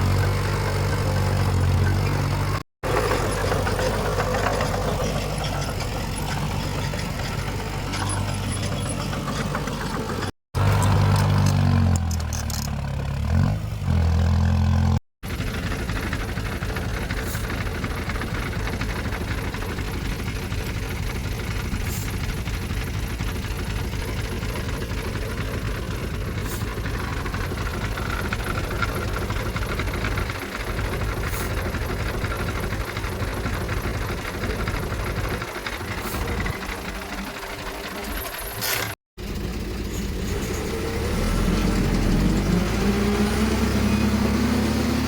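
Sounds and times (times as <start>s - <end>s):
heavy diesel engine running: 0.0s - 45.0s.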